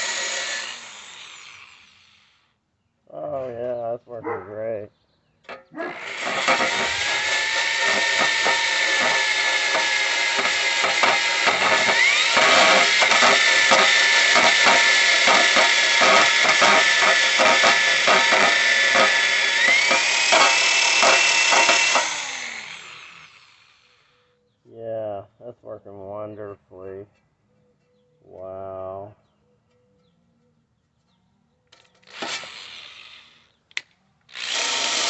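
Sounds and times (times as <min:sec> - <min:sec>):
power tool motor whine: 0:00.0 - 0:02.5, 0:05.9 - 0:24.1, 0:31.8 - 0:33.6, 0:34.3 - 0:35.0
wire brush scratching steel: 0:05.5 - 0:22.4.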